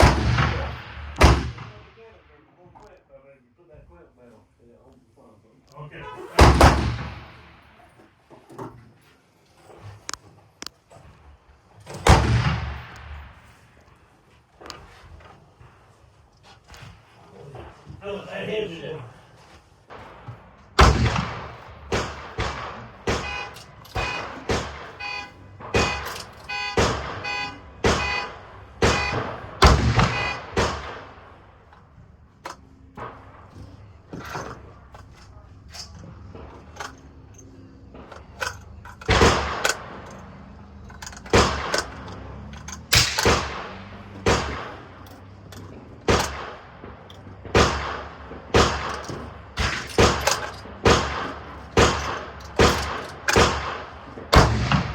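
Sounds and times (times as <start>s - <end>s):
rifle shots echoing: 0.0s - 2.4s, 6.4s - 7.9s, 11.9s - 14.2s, 19.9s - 31.7s, 36.2s - 54.9s.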